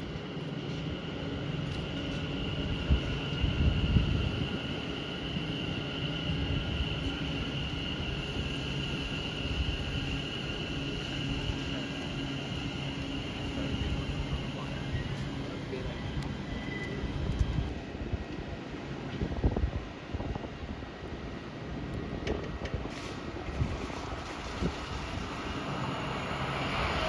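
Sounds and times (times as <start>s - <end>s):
train running: 0.0s - 27.0s
wind buffeting microphone: 2.2s - 11.7s, 16.1s - 27.0s.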